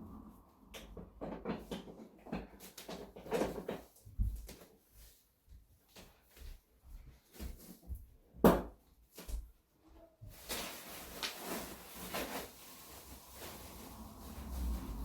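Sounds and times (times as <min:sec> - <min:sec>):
rustling: 0:10.2 - 0:15.0.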